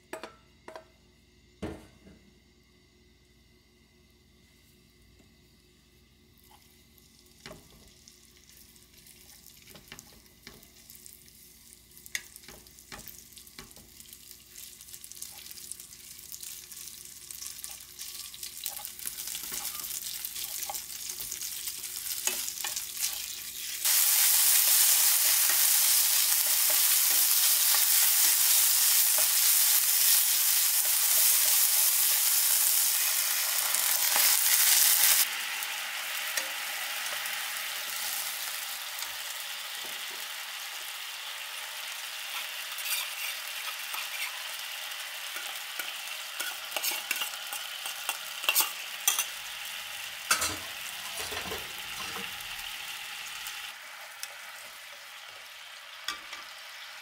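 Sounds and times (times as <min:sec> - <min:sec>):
chicken sizzling in oil: 0:06.4 - 0:57.0.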